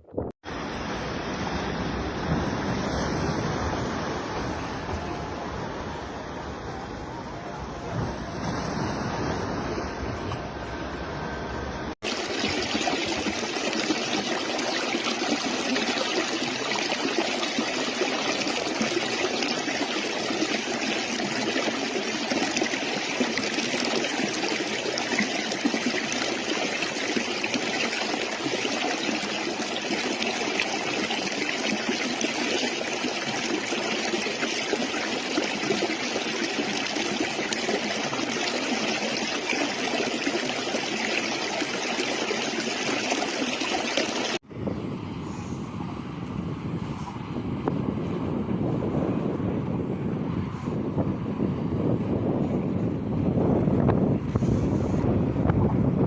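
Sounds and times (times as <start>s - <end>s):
stream water rushing: 0.5s - 44.4s.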